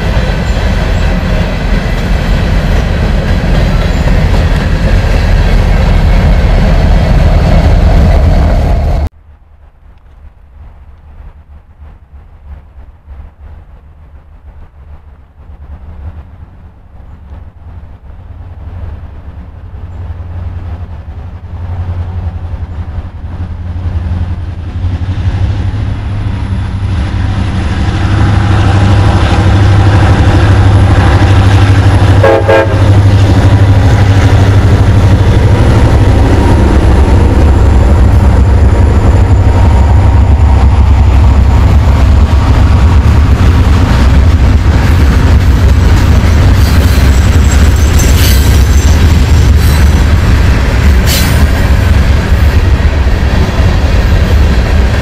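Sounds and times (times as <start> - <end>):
diesel train rumbling past: 0.0 - 55.0
train horn toot: 31.9 - 33.3.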